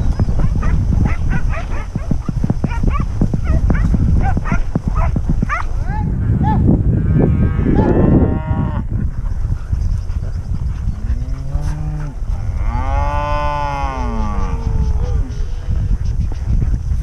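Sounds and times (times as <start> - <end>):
steady low rumble: 0.0 - 17.0
cattle mooing: 6.9 - 8.8.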